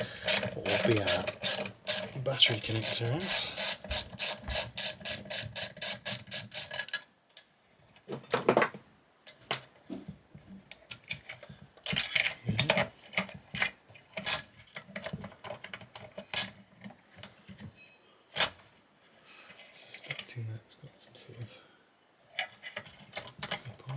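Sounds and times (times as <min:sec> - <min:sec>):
hand ratchet clicking: 0:00.0 - 0:06.7.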